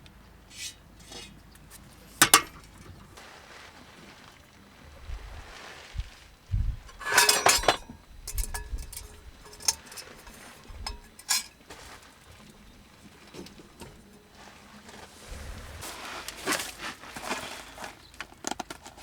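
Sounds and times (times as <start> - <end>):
metal objects clinking: 0.5 - 2.9, 6.9 - 11.8.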